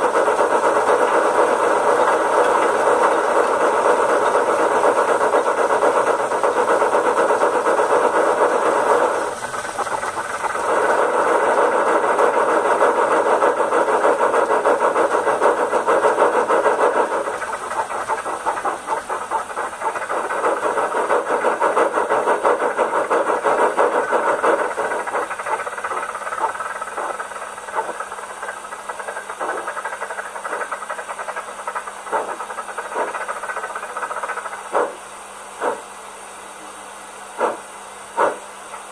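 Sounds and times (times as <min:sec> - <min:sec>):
steam locomotive chuffing through speaker: 0:00.0 - 0:38.9.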